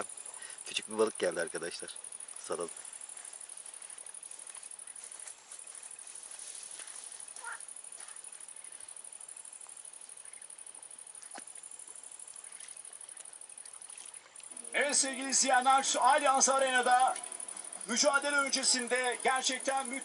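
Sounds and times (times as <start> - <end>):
insects trilling: 0.0 - 20.0
faint clicks: 11.1 - 14.6, 17.1 - 17.7.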